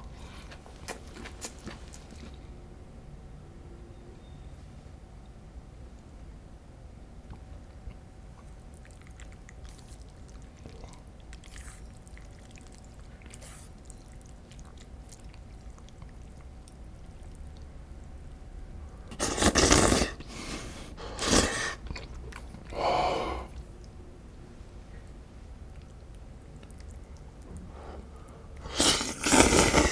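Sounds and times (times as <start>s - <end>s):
quiet chewing: 0.0s - 2.6s, 7.3s - 29.9s
loud mouth noise bursts: 19.1s - 21.8s, 28.6s - 29.9s.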